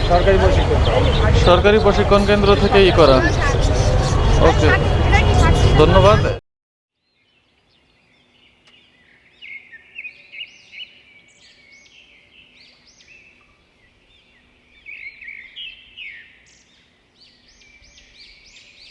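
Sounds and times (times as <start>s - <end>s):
small birds chirping: 0.0s - 6.4s.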